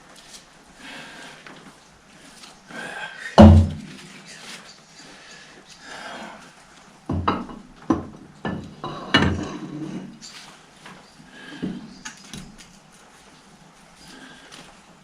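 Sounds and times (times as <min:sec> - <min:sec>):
metal clanks and knocks: 0:07.1 - 0:10.1.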